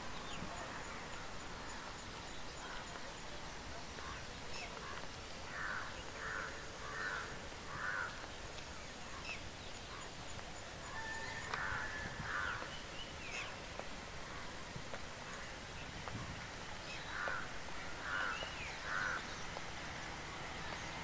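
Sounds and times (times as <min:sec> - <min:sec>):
harsh bird calls: 0:09.0 - 0:14.6, 0:16.8 - 0:19.6.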